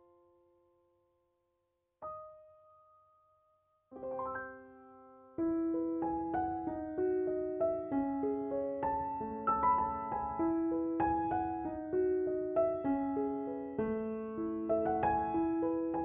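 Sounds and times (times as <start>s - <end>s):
piano music: 3.9s - 16.0s.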